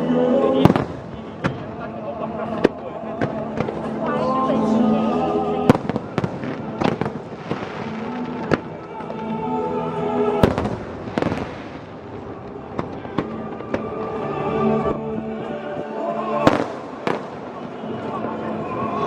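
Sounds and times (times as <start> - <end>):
background music: 0.0 - 19.0
fireworks bangs and crackling: 0.6 - 4.2, 5.6 - 9.5, 10.4 - 19.0.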